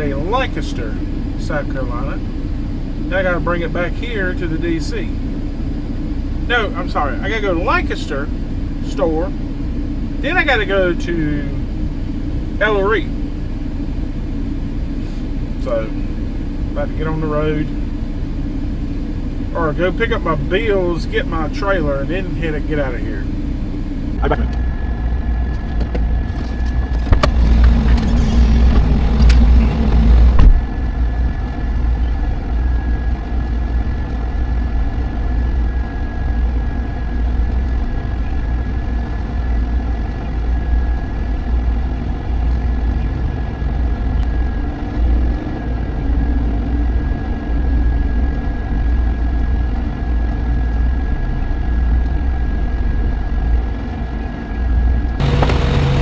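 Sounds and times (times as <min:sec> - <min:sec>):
diesel truck engine rumbling: 0:00.0 - 0:56.0
rush of noise: 0:19.5 - 0:56.0.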